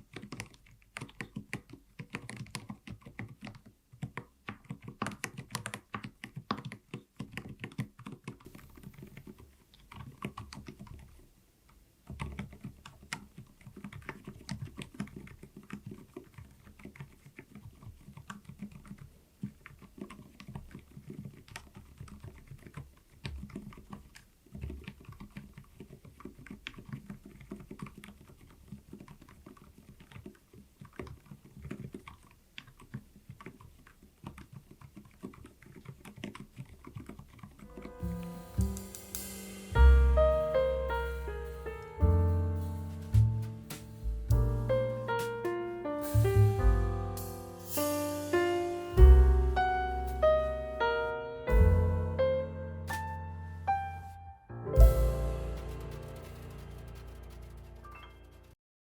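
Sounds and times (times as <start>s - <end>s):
soft keyboard keystrokes: 0.0s - 38.8s, 51.6s - 54.1s, 54.8s - 58.6s.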